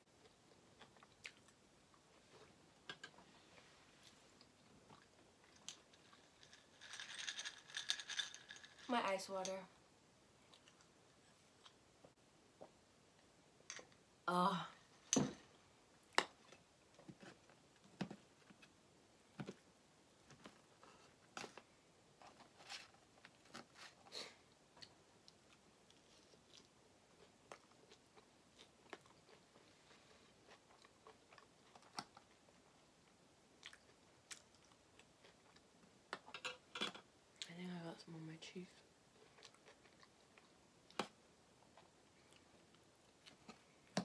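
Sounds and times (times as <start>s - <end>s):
faint chewing: 0.1s - 6.8s, 10.4s - 12.8s, 20.3s - 36.3s, 39.1s - 44.0s.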